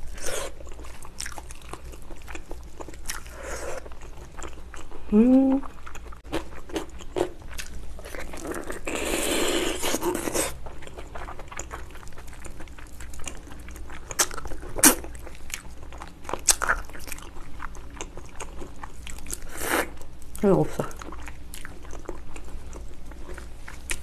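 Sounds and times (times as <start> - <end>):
close-miked wet chewing: 0.4 - 5.0, 9.7 - 19.6, 20.3 - 24.0.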